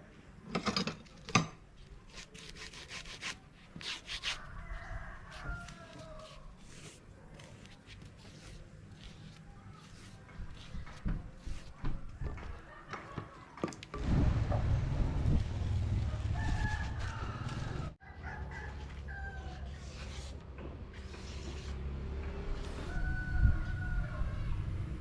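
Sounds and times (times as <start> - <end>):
rooster crowing: 4.4 - 6.5, 16.0 - 19.8, 22.7 - 24.6.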